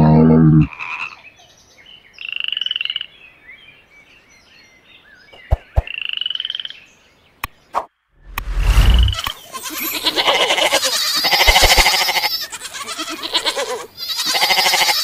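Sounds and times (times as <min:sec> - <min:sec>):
faint chirping calls: 0:01.1 - 0:07.9
tree frog calling: 0:05.8 - 0:06.8.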